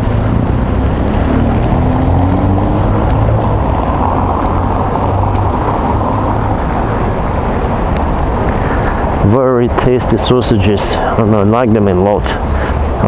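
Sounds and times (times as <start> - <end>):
vehicle engine running: 0.0 - 11.7
street noise: 0.0 - 13.0.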